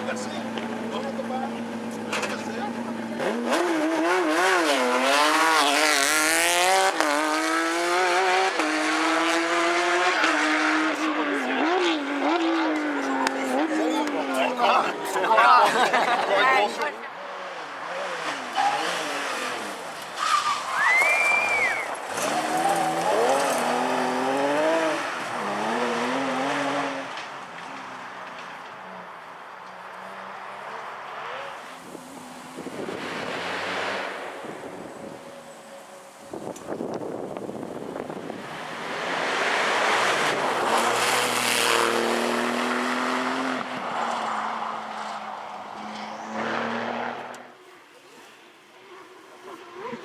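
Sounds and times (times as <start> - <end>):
rally car engine accelerating: 0.0 - 15.0, 20.9 - 28.7, 36.4 - 47.5.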